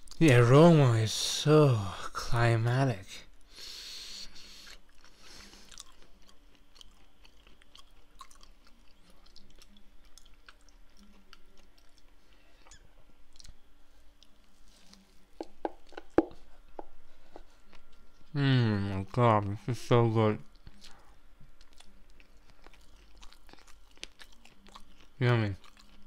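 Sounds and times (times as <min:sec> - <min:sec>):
breathy hiss: 0:03.4 - 0:05.7
wet chewing: 0:04.5 - 0:18.3, 0:20.5 - 0:26.0.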